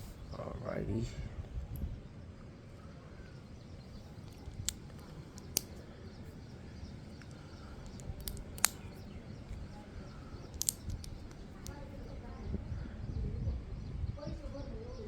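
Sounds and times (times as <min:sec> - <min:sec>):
plastic bricks clicking: 0:04.2 - 0:05.8, 0:07.1 - 0:09.6, 0:10.4 - 0:11.8.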